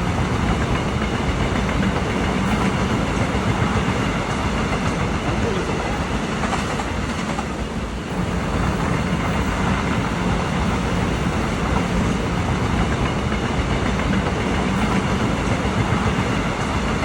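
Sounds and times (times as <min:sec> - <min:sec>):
train passing on tracks: 0:00.0 - 0:17.0.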